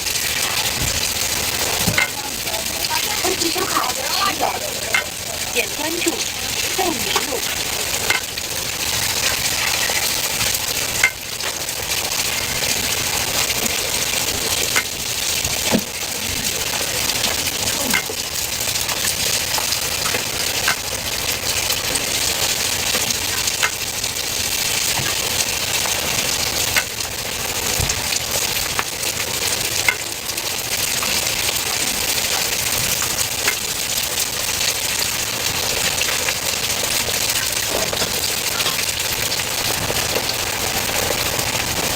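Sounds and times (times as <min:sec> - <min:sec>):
food sizzling in hot oil: 0:00.0 - 0:41.9
utensil tapping a pan: 0:00.8 - 0:08.5, 0:10.9 - 0:11.7, 0:14.6 - 0:15.0, 0:17.9 - 0:18.3, 0:20.0 - 0:20.9, 0:23.4 - 0:23.9, 0:26.7 - 0:27.0, 0:29.8 - 0:30.3.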